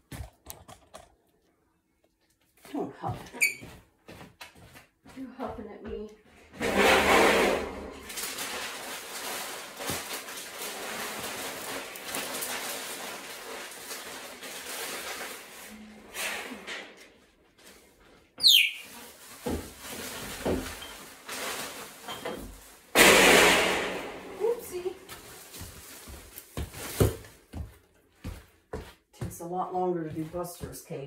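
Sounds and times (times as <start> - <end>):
rustling and handling noises: 6.1 - 16.0, 17.0 - 22.9, 24.1 - 29.2.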